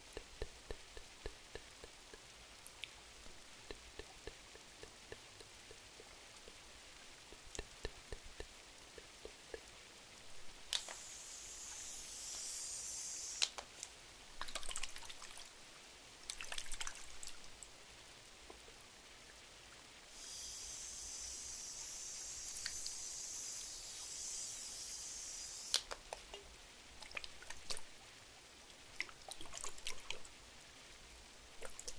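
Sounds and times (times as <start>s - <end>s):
rain dripping: 0.0s - 31.9s
high hiss: 10.7s - 13.7s, 20.1s - 25.9s.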